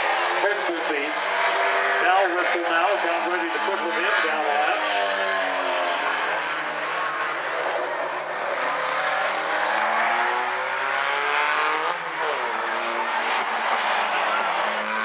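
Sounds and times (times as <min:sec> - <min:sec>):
race car engines: 0:00.0 - 0:15.0
car accelerating past: 0:04.1 - 0:15.0.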